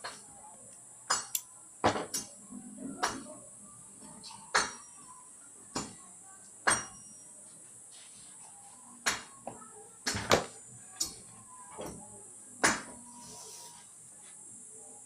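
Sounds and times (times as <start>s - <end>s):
metallic clinks and taps: 1.1s - 1.5s.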